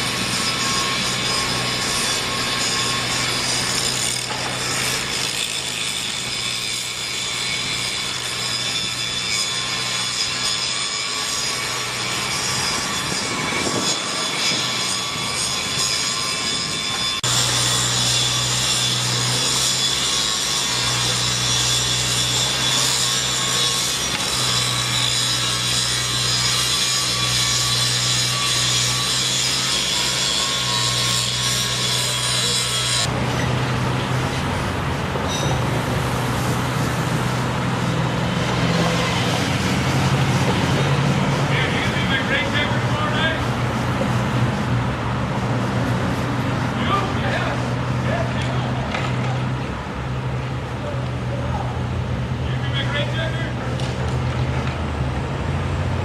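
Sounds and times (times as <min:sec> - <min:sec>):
grinding saw-like machinery noise: 0:00.0 - 0:56.0.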